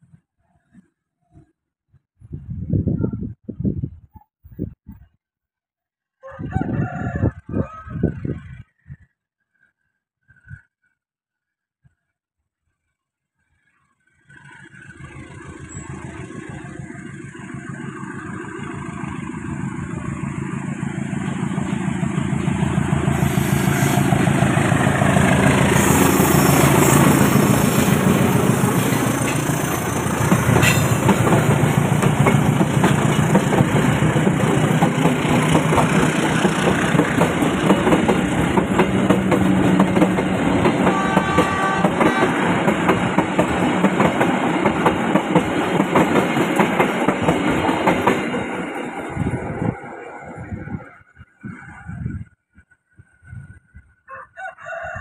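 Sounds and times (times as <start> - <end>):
diesel locomotive engine: 14.2 - 53.7
train wheels clattering over rail joints: 28.8 - 48.7.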